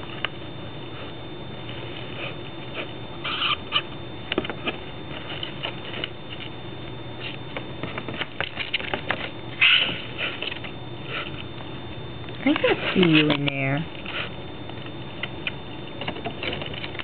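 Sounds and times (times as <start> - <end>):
birds scratching and clicking: 2.2 - 6.5, 7.2 - 11.5, 12.4 - 17.0.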